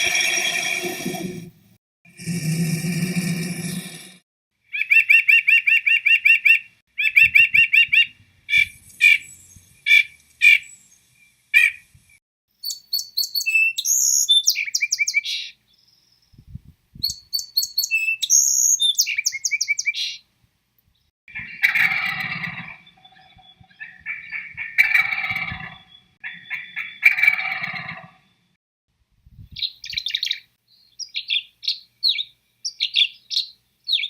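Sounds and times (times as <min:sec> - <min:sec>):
songbird trilling and chirping: 0:12.6 - 0:20.2, 0:22.7 - 0:27.1, 0:29.5 - 0:34.0.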